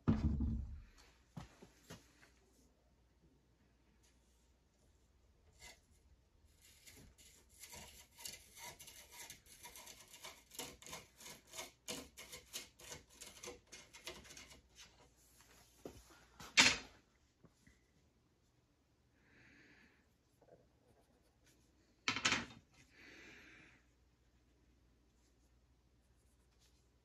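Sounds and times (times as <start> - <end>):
scraping strokes on wood: 5.5 - 15.2.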